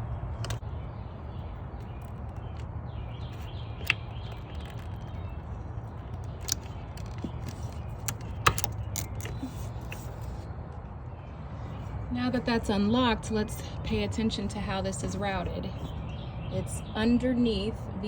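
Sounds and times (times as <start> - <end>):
plastic clicks and rattles: 1.8 - 10.2.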